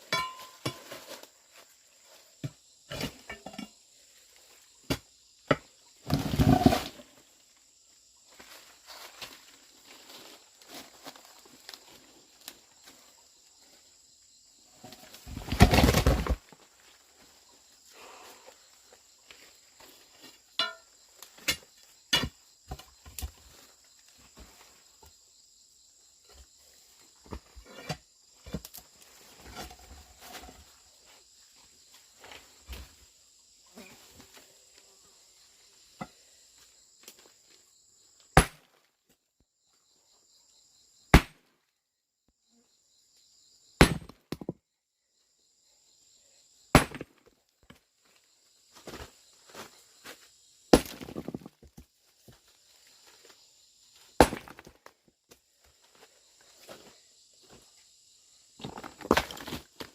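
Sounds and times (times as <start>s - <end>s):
handling and rustling: 0.0s - 2.3s
insects chirping: 0.0s - 59.9s.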